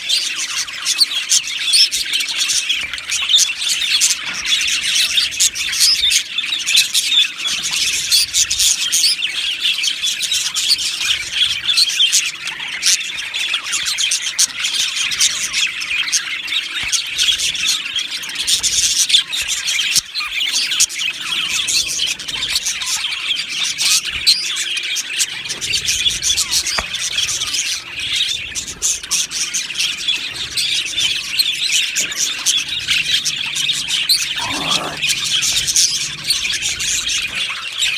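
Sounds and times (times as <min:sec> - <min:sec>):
budgerigars chirping and chattering: 0:00.0 - 0:37.9
sharp bird squawks: 0:34.2 - 0:35.2.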